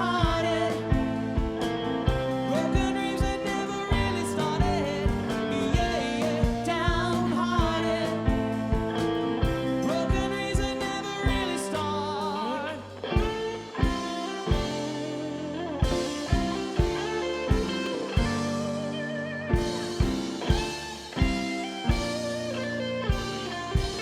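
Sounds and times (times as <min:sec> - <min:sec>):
drum kit beat: 0:00.0 - 0:12.4, 0:13.0 - 0:24.0
rock band playing: 0:00.0 - 0:24.0
wavering lead melody: 0:13.0 - 0:24.0.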